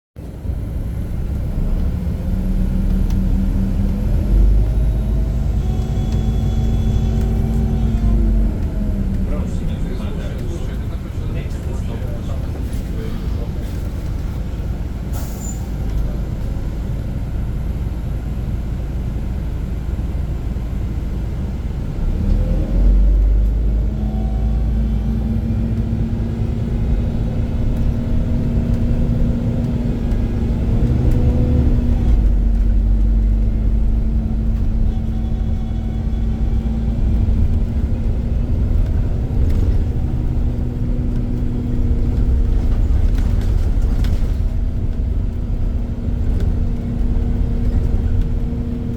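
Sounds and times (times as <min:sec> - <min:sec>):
bus diesel engine: 0:00.2 - 0:48.9.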